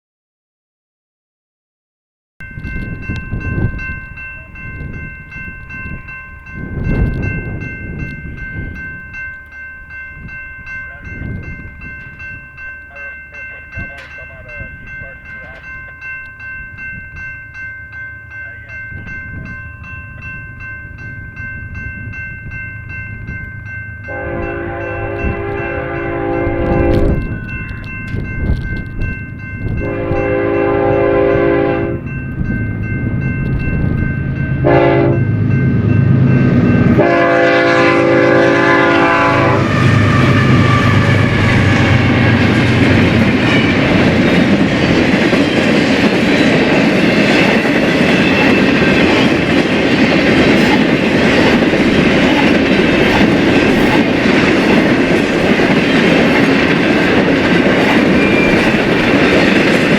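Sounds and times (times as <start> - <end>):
locomotive engine drone: 2.6 - 59.9
train wheels clattering on rails: 11.1 - 16.4, 24.1 - 31.5, 39.8 - 59.9
locomotive horn blasts: 24.1 - 27.3, 29.8 - 32.0, 34.6 - 35.3, 37.0 - 41.8.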